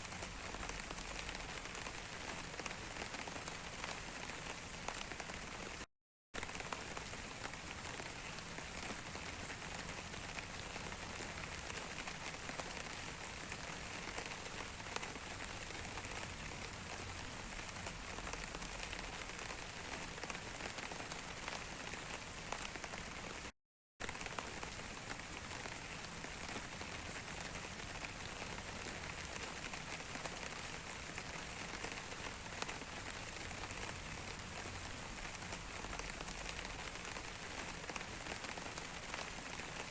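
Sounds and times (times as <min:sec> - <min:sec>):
patter of raindrops: 0:00.0 - 0:39.9.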